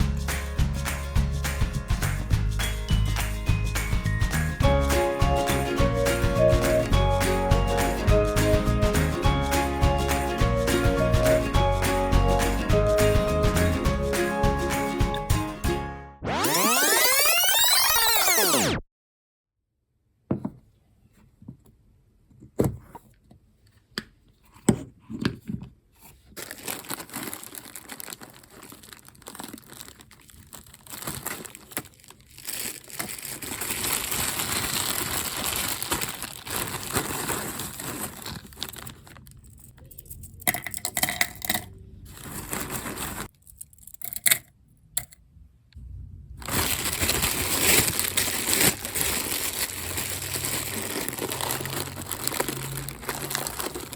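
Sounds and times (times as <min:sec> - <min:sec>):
paper rustling and crinkling: 0:26.0 - 0:39.7, 0:42.1 - 0:43.4, 0:46.4 - 0:53.9
paper tearing: 0:46.4 - 0:53.9.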